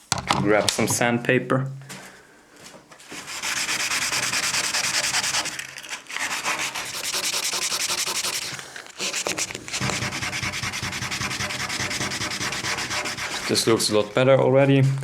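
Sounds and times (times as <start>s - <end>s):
sandpaper rubbing on wood: 3.2s - 14.8s.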